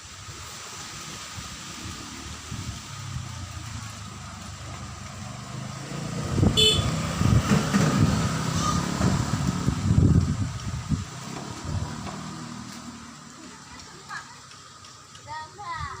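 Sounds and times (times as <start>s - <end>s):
wind buffeting microphone: 6.0s - 12.5s.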